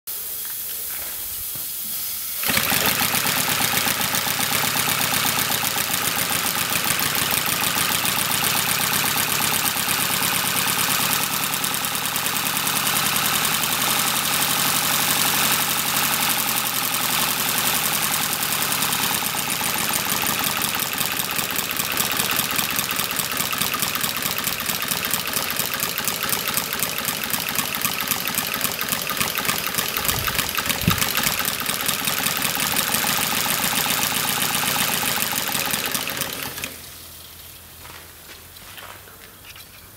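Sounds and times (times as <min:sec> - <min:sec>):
steam hiss: 0:00.1 - 0:05.5
steam engine running: 0:00.1 - 0:37.0.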